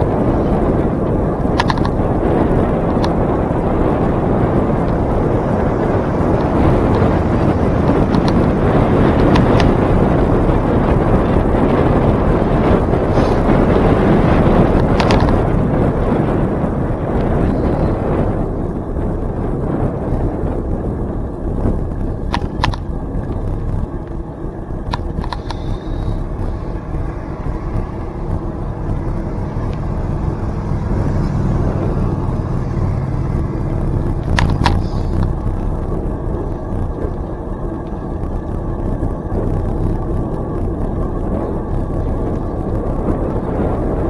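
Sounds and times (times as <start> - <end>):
bicycle rolling on trail: 0.0 - 44.0
wind rumbling on microphone: 0.0 - 44.0
sharp clicks: 1.5 - 2.0, 33.8 - 35.9.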